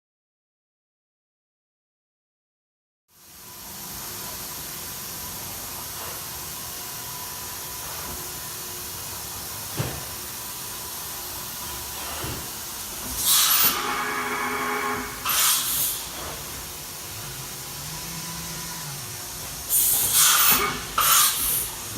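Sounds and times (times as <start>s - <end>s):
machining center hissing: 3.6s - 21.9s
hissing air bursts: 7.7s - 21.9s.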